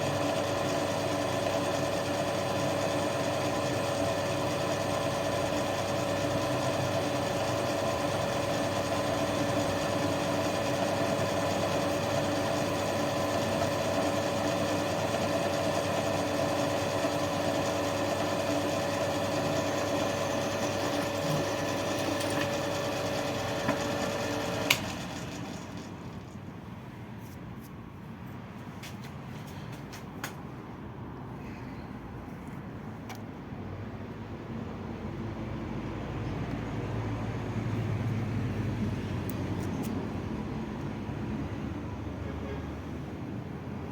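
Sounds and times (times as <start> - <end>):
electric motor humming: 0.0 - 25.8.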